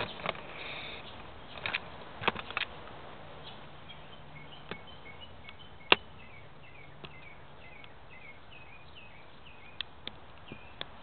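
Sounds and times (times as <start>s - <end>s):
faint bird chirps: 3.4s - 10.9s
sharp clicks: 5.4s - 6.1s.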